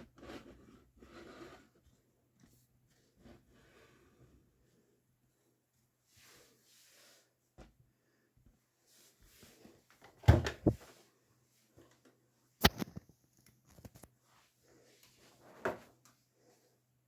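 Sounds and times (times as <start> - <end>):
washing machine door clunks: 10.3 - 10.7.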